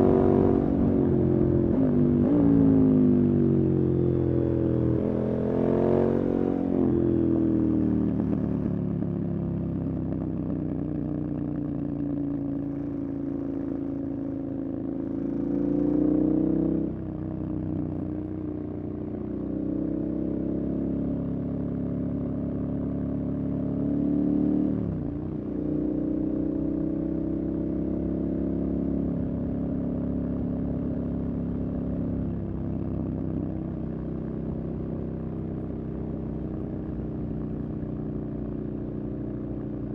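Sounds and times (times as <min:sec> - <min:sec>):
motorcycle engine revving: 0:00.0 - 0:03.2.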